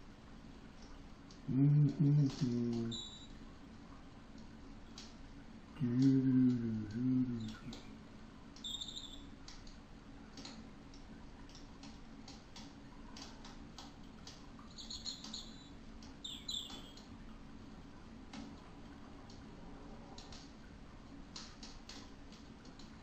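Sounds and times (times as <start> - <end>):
low steady hum: 0.0 - 23.0
bird chirping: 2.9 - 3.3, 8.6 - 9.3, 14.7 - 17.0
faint irregular ticks: 5.8 - 7.9, 19.2 - 23.0.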